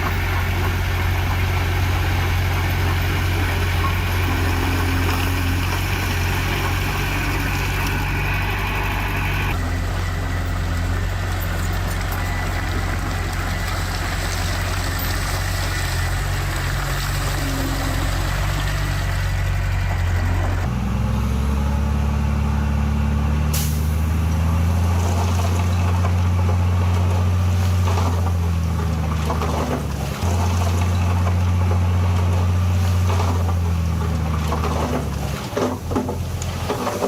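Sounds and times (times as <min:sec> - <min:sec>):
heavy diesel engines running: 0:00.0 - 0:37.0
short sharp air hiss: 0:23.6 - 0:24.0.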